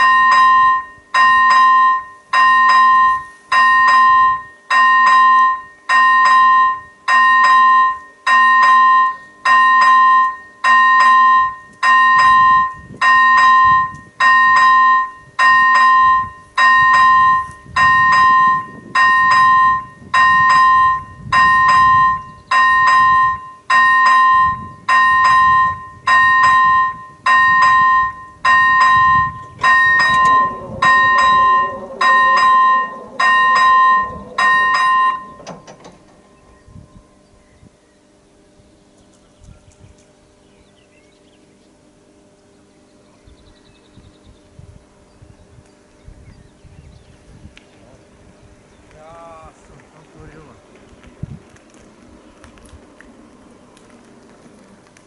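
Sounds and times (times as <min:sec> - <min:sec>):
bell-like tone struck: 0:00.0 - 0:35.4
faint low rumble: 0:11.2 - 0:40.1, 0:43.3 - 0:55.0.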